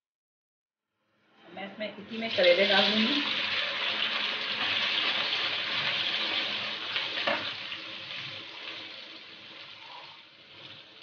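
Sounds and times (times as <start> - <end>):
vegetables sizzling in hot oil: 2.3 - 11.0.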